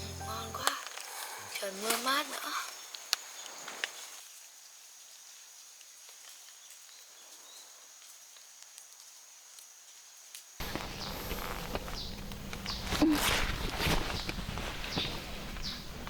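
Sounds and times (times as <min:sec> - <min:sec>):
rain hissing: 0:00.0 - 0:02.8, 0:10.6 - 0:16.0
high insect tone: 0:00.0 - 0:05.7
loud rustling noise: 0:10.6 - 0:16.0.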